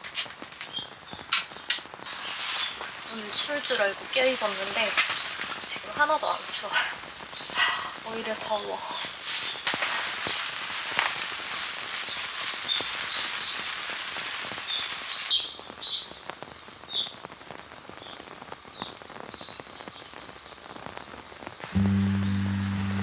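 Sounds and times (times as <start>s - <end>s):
steady rain falling: 0.0s - 23.0s
low steady musical tone: 21.6s - 23.0s.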